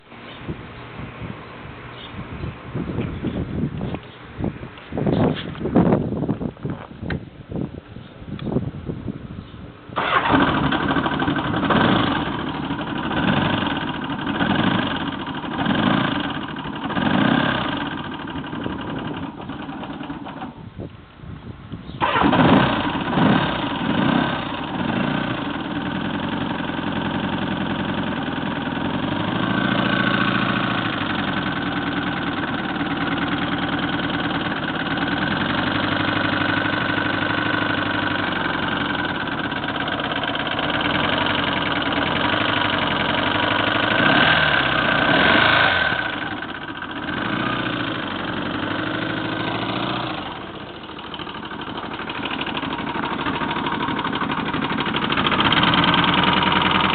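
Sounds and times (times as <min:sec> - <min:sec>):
engine revving: 0:10.0 - 0:20.4, 0:22.0 - 0:56.9
engine knocking: 0:10.0 - 0:20.6, 0:22.0 - 0:56.9
motorcycle engine idling: 0:10.0 - 0:20.8, 0:21.8 - 0:56.9.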